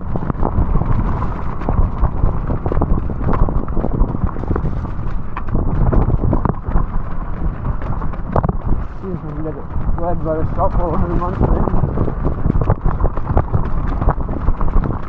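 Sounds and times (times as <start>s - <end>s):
wind: 0.0s - 15.0s
tyres rumbling: 4.0s - 14.1s.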